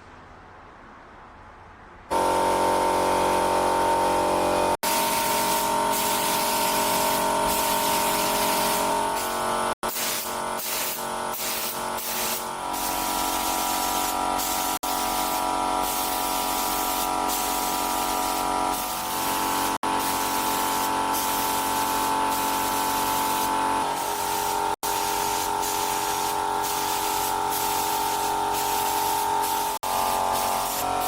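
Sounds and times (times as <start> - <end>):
pressurised spray hissing: 4.8 - 31.0.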